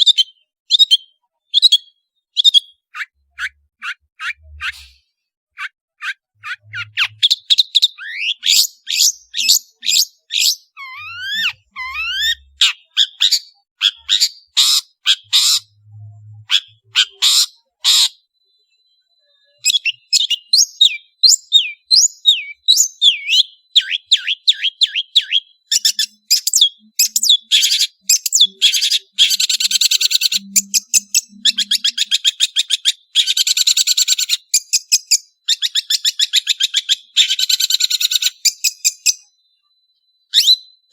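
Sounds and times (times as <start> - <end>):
bird singing whistled notes: 0.0 - 40.9.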